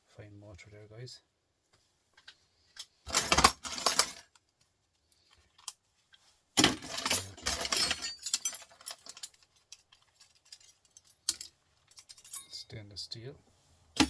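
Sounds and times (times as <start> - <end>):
metal scrap jingling rattle: 6.6 - 12.6.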